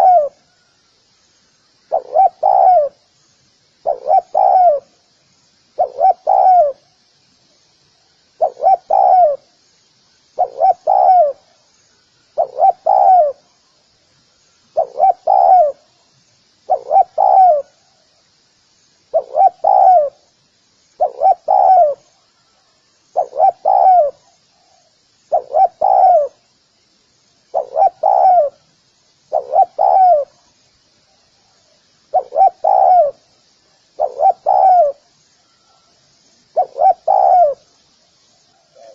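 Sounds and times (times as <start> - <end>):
dove cooing: 0.0 - 0.4, 1.9 - 3.0, 3.8 - 4.9, 5.8 - 6.9, 8.4 - 9.4, 10.4 - 11.5, 12.4 - 13.4, 14.8 - 15.9, 16.7 - 17.8, 19.1 - 20.2, 21.0 - 22.2, 23.1 - 26.4, 27.5 - 28.6, 29.3 - 30.4, 32.1 - 33.2, 34.0 - 35.8, 36.5 - 37.7, 38.6 - 38.9.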